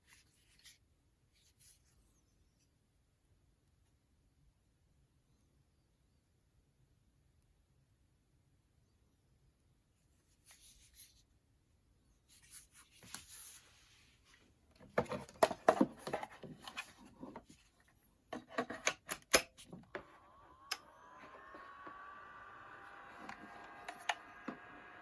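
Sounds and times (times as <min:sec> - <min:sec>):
plastic parts clicking together: 0:18.4 - 0:20.9
faint whine with gliding tones: 0:19.7 - 0:25.0.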